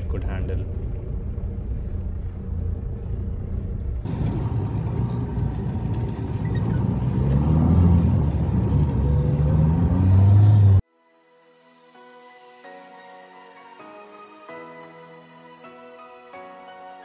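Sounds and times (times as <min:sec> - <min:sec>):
diesel engine rumbling: 0:00.0 - 0:10.8
tyres on rough dirt trail: 0:00.6 - 0:10.8.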